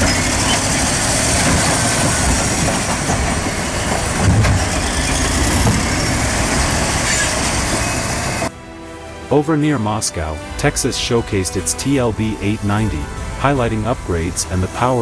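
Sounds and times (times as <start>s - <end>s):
heavy machinery rattling: 0.0s - 8.4s.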